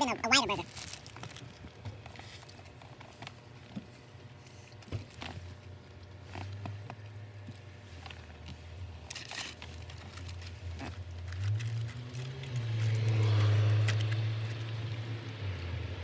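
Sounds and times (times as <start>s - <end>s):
chewing crunchy fries: 0.0s - 3.4s, 8.0s - 15.0s
low hum inside a car: 0.0s - 13.2s.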